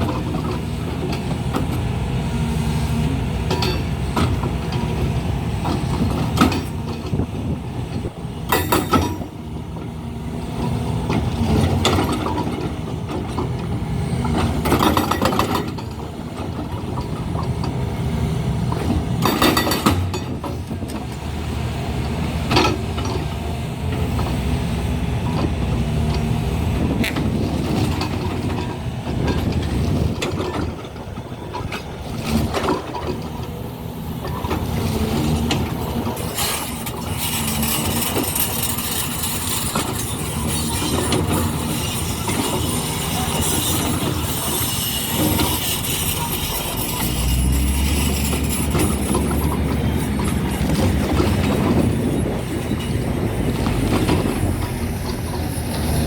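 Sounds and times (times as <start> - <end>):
heavy machinery running: 0.0 - 56.0
metal clanks: 8.5 - 9.4, 18.7 - 21.1, 34.2 - 56.0.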